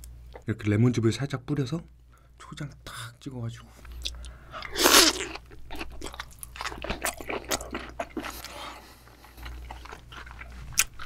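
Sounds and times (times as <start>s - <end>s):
wet chewing of raw fish: 4.1s - 11.0s.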